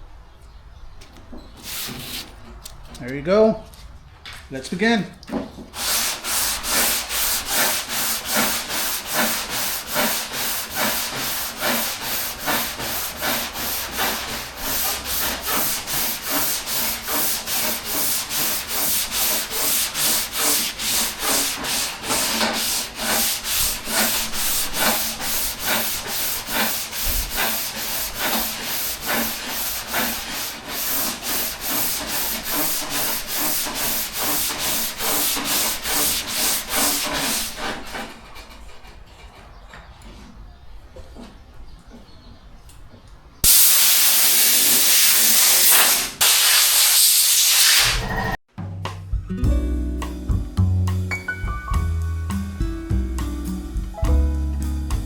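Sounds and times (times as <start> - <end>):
sandpaper rasping strokes: 1.6 - 2.4, 5.8 - 38.1, 43.4 - 48.3.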